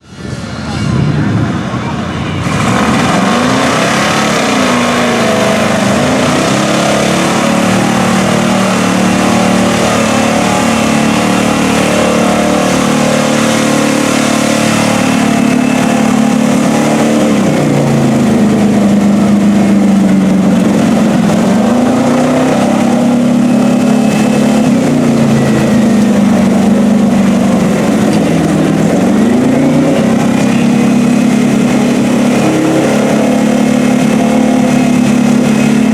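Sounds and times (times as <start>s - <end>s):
truck engine revving: 0.0s - 35.9s.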